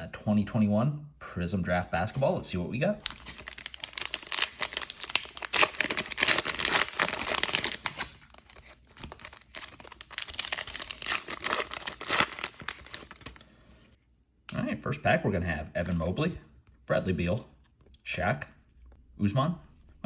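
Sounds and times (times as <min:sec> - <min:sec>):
wrapper tearing and crinkling: 0:03.0 - 0:13.4.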